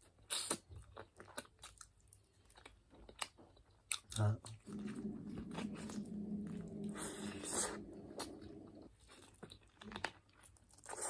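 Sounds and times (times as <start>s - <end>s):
person chewing and crunching: 0.0s - 11.0s
low humming: 4.6s - 8.9s.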